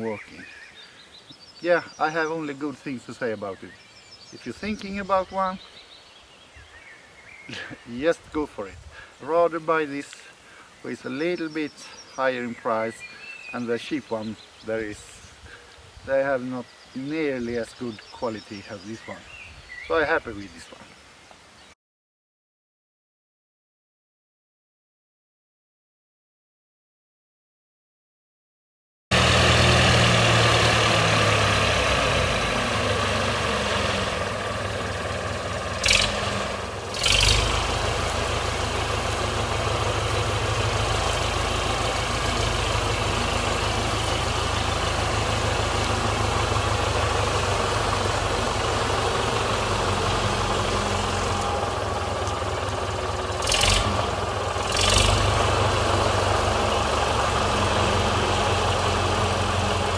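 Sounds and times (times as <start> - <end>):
sawmill engine running: 29.1 - 59.9.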